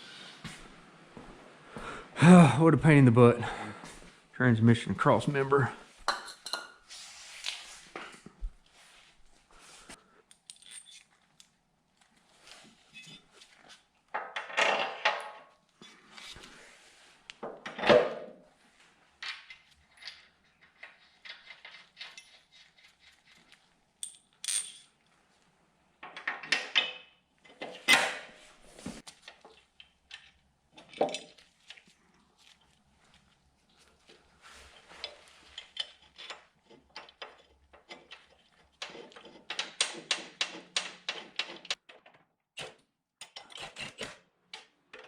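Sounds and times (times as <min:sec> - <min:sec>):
metal parts clinking: 0:10.3 - 0:11.1, 0:24.0 - 0:24.9.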